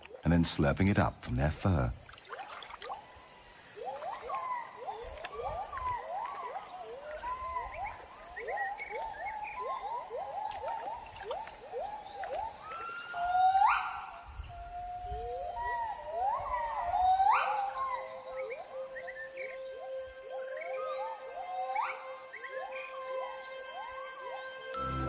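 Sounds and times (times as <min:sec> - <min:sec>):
gibbon whooping calls: 0:03.8 - 0:22.9.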